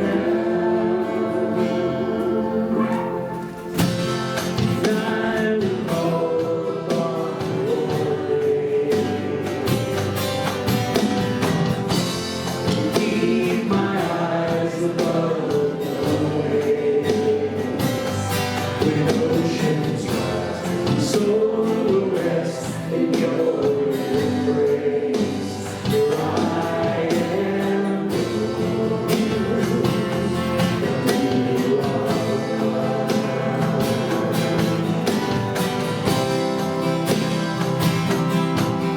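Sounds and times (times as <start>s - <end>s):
group singing worship song: 0.0s - 38.9s
instrumental accompaniment: 25.7s - 38.9s.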